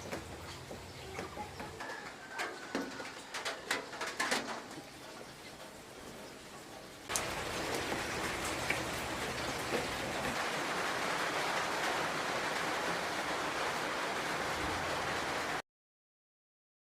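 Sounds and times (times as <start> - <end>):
steady rain falling: 0.0 - 15.6
loud water drip: 7.0 - 15.4.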